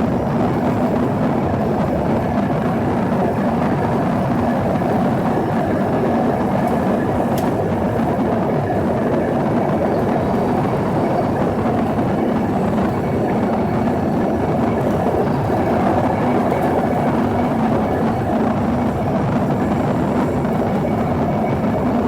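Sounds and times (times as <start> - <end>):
jet engines in cabin: 0.0 - 22.0.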